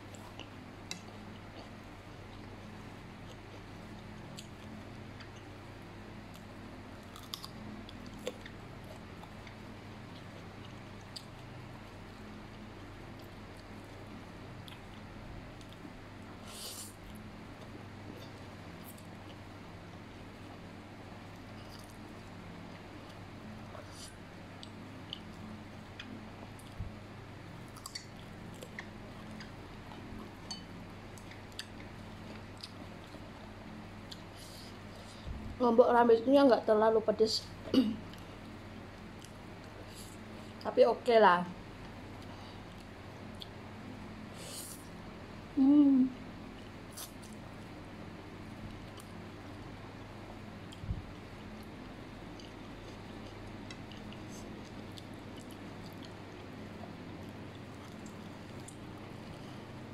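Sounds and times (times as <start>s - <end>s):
faint low hum: 0.0s - 59.9s
person chewing food: 6.2s - 19.5s, 21.3s - 35.1s, 38.1s - 40.6s, 41.8s - 43.6s, 46.6s - 47.7s, 48.4s - 59.9s
chewing noodles: 51.6s - 59.6s.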